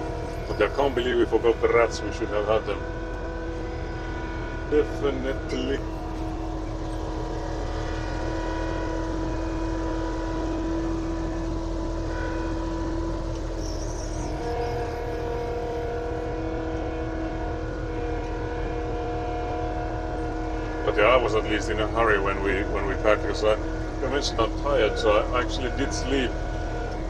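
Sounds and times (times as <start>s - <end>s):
engine running steadily: 0.0s - 27.0s.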